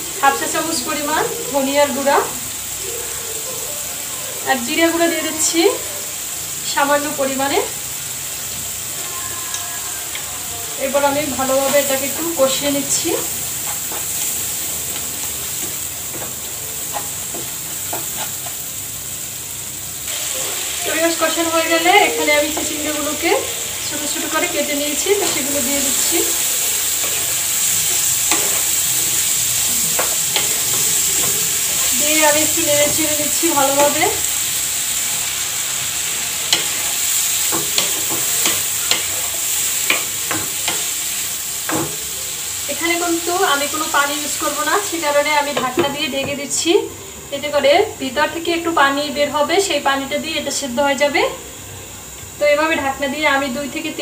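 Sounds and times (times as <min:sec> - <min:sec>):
food sizzling in hot oil: 0:00.0 - 0:54.0
stirring scrapes in pan: 0:13.3 - 0:18.7, 0:25.2 - 0:33.1.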